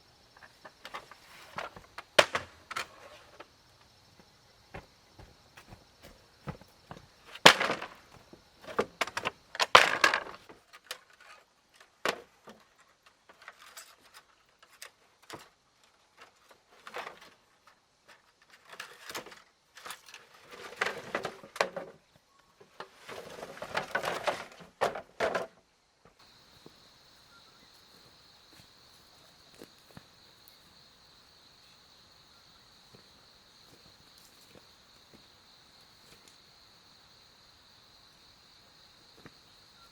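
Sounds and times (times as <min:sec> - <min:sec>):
high insect drone: 0:00.0 - 0:11.6, 0:26.2 - 0:39.9
knocks and cracks: 0:01.6 - 0:02.9, 0:06.9 - 0:10.6
rustling: 0:22.6 - 0:25.4.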